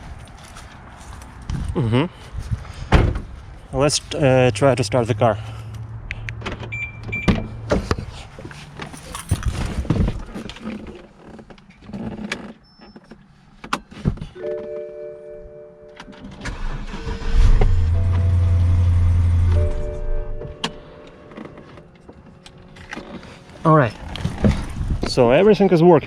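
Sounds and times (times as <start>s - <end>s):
handling clicks and knocks: 6.3s - 14.9s
car engine starting: 16.2s - 24.8s.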